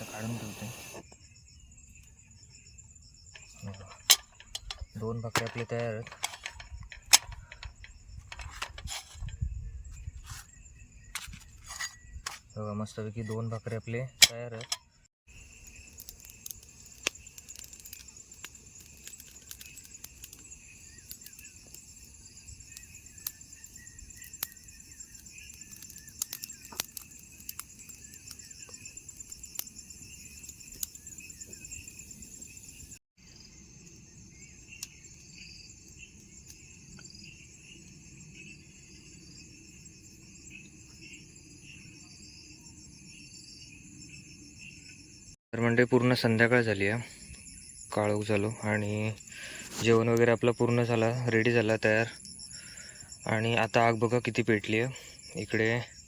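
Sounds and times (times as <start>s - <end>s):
crickets and insects trilling: 0.0s - 56.0s
sharp clicks and pops: 3.4s - 9.4s, 15.5s - 21.8s, 24.0s - 31.6s.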